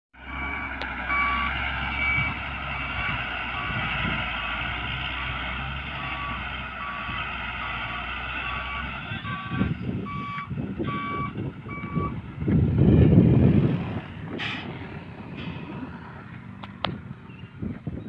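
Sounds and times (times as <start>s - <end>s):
truck reversing alarm beeping: 0.2s - 12.2s
truck engine running: 0.2s - 18.0s.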